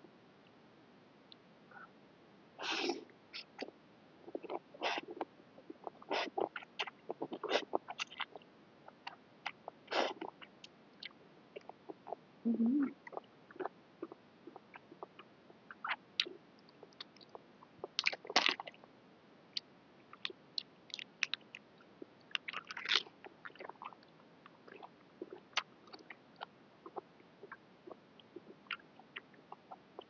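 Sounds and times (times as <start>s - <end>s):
lip smacks and mouth clicks: 6.1s - 8.4s, 15.9s - 18.8s, 19.6s - 27.6s, 28.2s - 29.4s
wet chewing: 6.1s - 8.4s, 22.3s - 27.6s.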